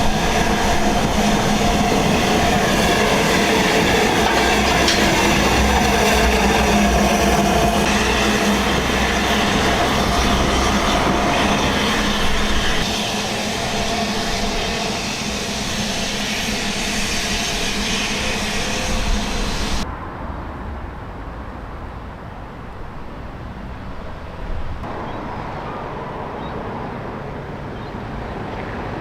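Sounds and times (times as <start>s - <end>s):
train rumbling with hiss: 0.0s - 20.3s.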